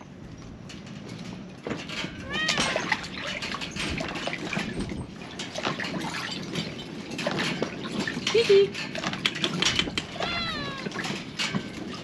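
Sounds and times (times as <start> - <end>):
animal cry: 2.2 - 2.9, 10.0 - 11.1.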